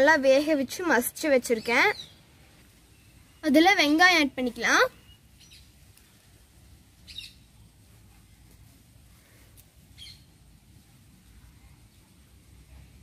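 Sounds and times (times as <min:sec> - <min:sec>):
faint bird chirps: 0:01.5 - 0:06.2, 0:07.0 - 0:07.7, 0:09.9 - 0:10.3.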